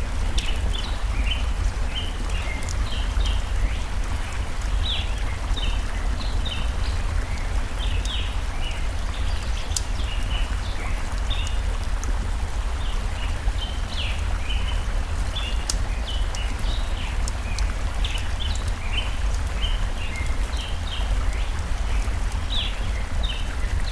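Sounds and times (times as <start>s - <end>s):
rushing stream water: 0.0s - 23.9s
wood fire crackling: 0.0s - 23.9s.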